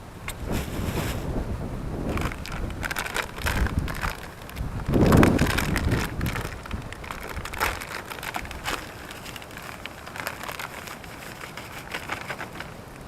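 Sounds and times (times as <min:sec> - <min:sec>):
dry bait crunching and rustling: 0:00.3 - 0:01.4, 0:02.0 - 0:13.0
scrapes: 0:00.3 - 0:01.4, 0:02.1 - 0:12.8.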